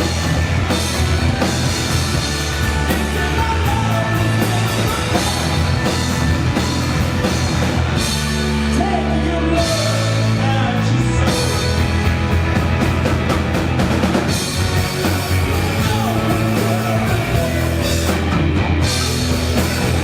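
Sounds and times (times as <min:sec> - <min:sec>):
live rock band playing: 0:00.0 - 0:20.0
person singing: 0:02.7 - 0:06.0, 0:14.8 - 0:18.4.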